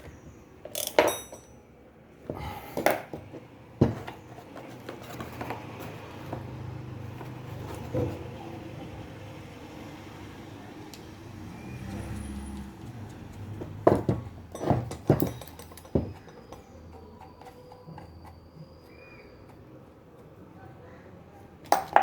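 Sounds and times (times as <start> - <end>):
metal knocks and clinks: 0.7 - 1.6, 13.6 - 18.4, 21.7 - 22.0.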